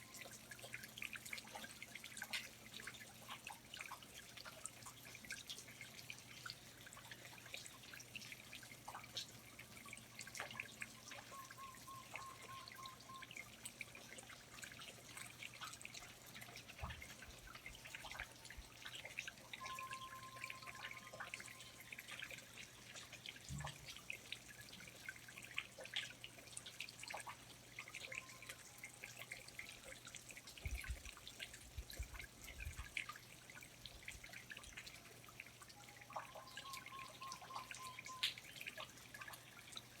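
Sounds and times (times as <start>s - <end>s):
water dripping from foliage: 0.0s - 40.0s
whistled bird notes: 11.0s - 13.4s, 19.6s - 21.8s, 36.2s - 38.4s.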